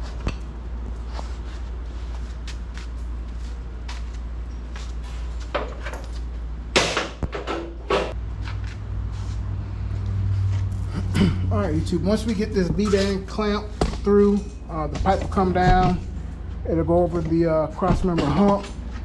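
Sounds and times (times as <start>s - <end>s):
steady low hum: 0.0s - 19.0s
knocks and clatter: 13.7s - 16.3s.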